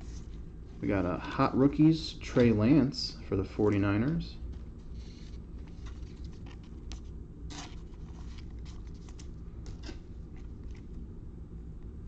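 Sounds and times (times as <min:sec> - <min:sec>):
steady low hum: 0:00.0 - 0:12.0
trading cards sliding: 0:04.8 - 0:10.8.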